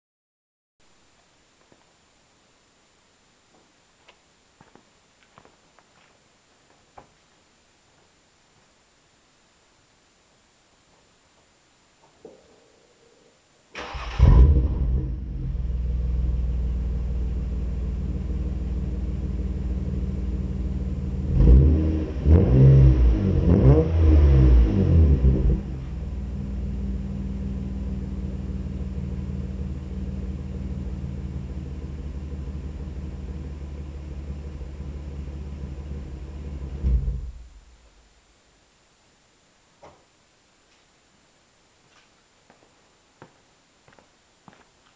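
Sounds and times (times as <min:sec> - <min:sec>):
car engine idling and revving: 0:14.2 - 0:37.7.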